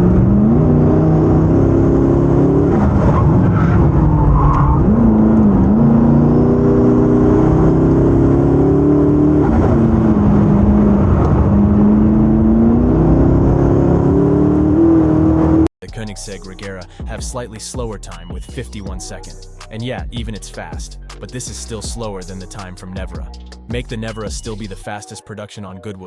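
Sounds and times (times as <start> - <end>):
car engine revving hard: 0.0 - 15.7.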